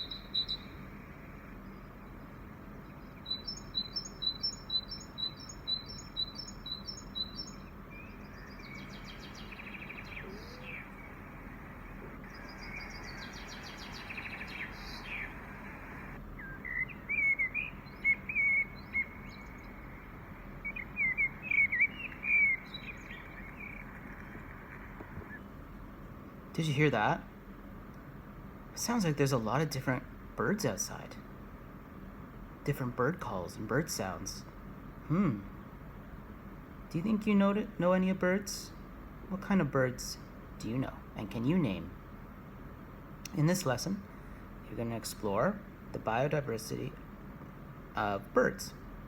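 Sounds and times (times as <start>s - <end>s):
birds calling and singing: 0.0s - 28.2s
steady background hiss: 0.0s - 49.0s.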